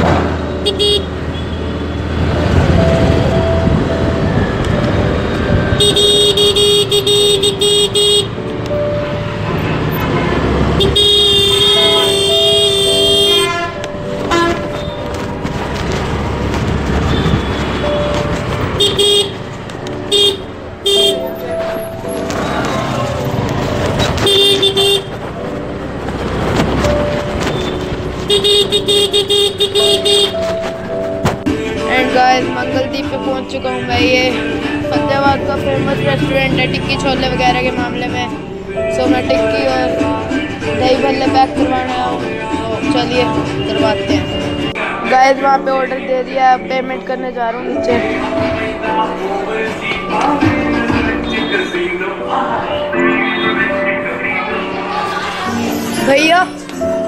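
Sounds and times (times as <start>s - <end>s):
street traffic engines: 0.0s - 57.0s
vehicle horn toots: 0.6s - 2.1s, 5.7s - 8.4s, 9.9s - 15.1s, 17.0s - 19.4s, 20.1s - 23.0s, 23.9s - 25.2s, 27.4s - 30.6s, 51.1s - 52.0s.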